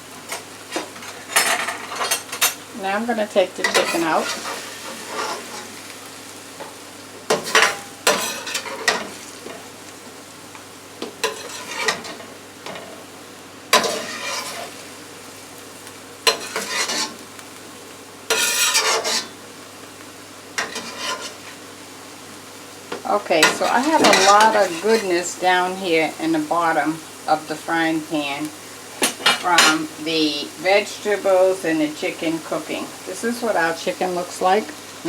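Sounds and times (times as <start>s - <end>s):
food sizzling in a frying pan: 0.0s - 35.0s
utensil scraping and clinking on pan: 3.6s - 5.7s, 7.3s - 9.6s, 11.2s - 12.9s, 13.8s - 14.8s, 16.3s - 17.2s, 18.3s - 19.4s, 20.6s - 21.6s, 23.4s - 25.1s.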